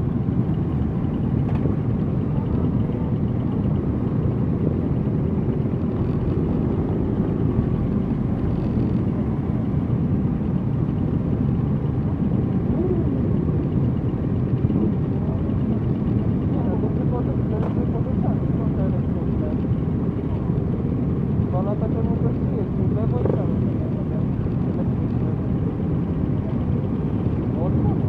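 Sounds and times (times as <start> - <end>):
many motorcycle engines rumbling: 0.0 - 28.0.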